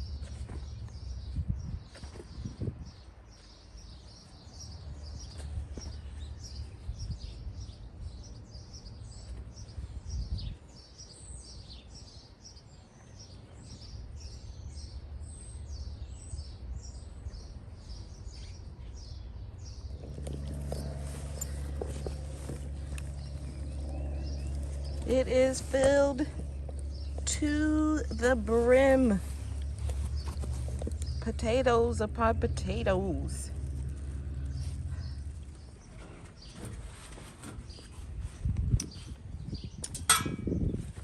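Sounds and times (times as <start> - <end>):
songbirds chirping: 0.0 - 41.0
low rumble: 19.8 - 36.4.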